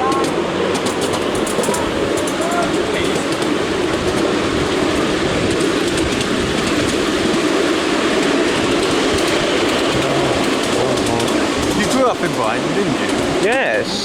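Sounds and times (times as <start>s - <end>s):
train wheels rumbling on rails: 0.0s - 14.0s
faint ticking: 8.2s - 13.7s.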